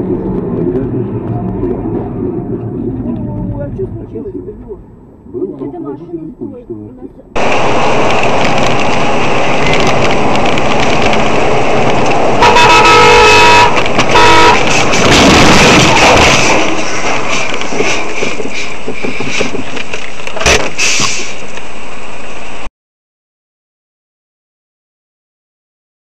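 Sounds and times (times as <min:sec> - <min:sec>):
vehicle road noise: 0:00.0 - 0:22.7
car horn blasts: 0:12.4 - 0:14.8.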